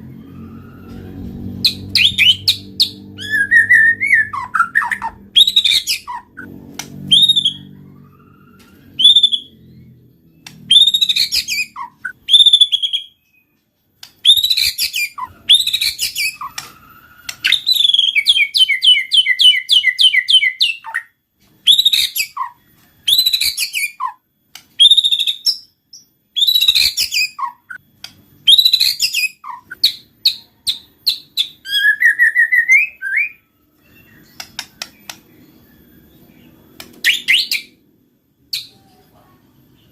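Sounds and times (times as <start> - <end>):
bird singing whistled phrases: 1.6 - 6.5, 7.1 - 9.8, 10.6 - 13.5, 14.2 - 24.2, 26.4 - 27.8, 28.4 - 35.2, 35.9 - 37.8.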